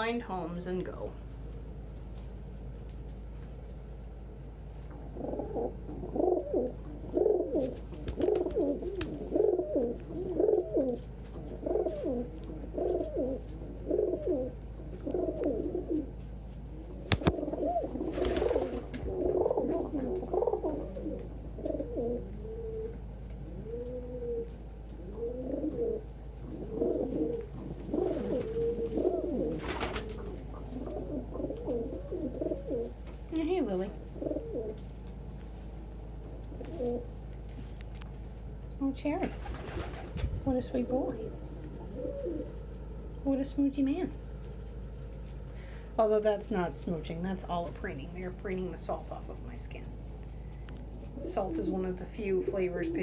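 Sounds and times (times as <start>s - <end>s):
pigeons cooing: 4.9s - 35.4s, 36.0s - 37.4s, 38.2s - 43.2s, 48.2s - 53.0s.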